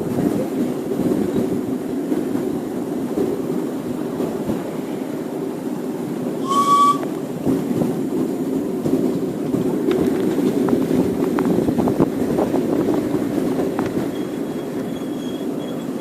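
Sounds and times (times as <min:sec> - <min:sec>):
miniature train wheels rumbling: 0:06.4 - 0:16.0.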